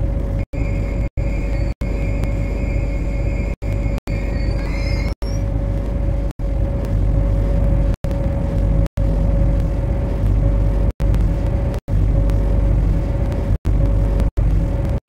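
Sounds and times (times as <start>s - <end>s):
metro train rumble: 0.0s - 15.0s
running gear whine: 0.0s - 15.0s
faint rising high tones: 0.4s - 5.6s.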